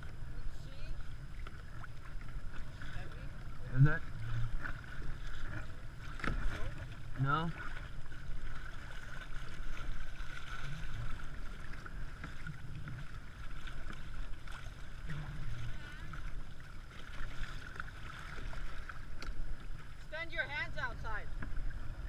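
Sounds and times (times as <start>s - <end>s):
water moving around kayak: 0.0s - 22.0s.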